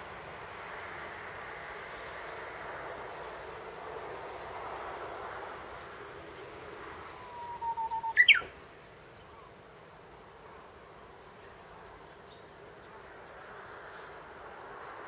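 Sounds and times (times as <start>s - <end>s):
background hiss: 0.0s - 15.0s
bird singing whistled song: 7.1s - 8.5s.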